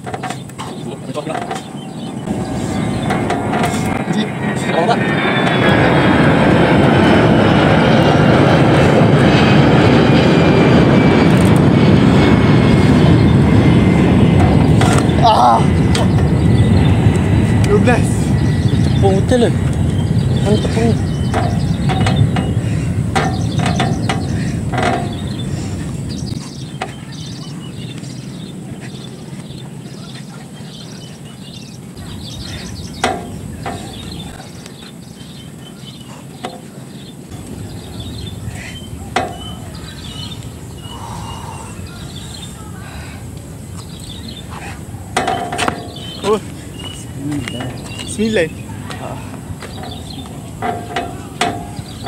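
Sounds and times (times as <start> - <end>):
low outdoor rumble: 0.0 - 52.0
small birds chirping: 0.0 - 52.0
sharp knocks: 23.2 - 25.2, 33.0 - 33.9.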